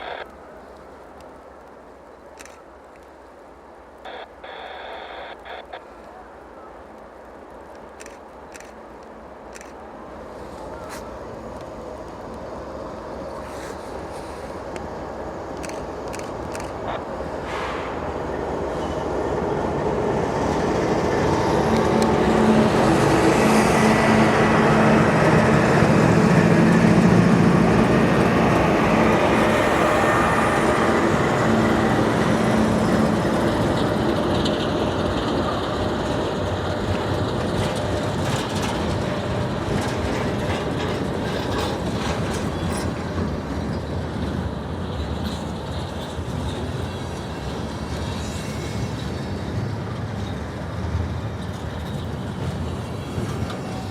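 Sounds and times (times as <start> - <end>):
diesel locomotive engine drone: 0.0 - 53.9
train wheel clatter: 20.5 - 53.9.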